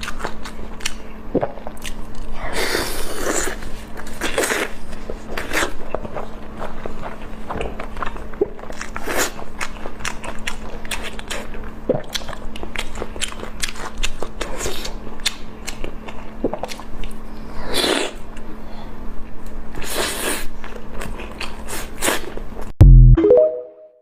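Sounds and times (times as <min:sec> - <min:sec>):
person chewing food: 0:00.0 - 0:17.3, 0:19.8 - 0:22.7.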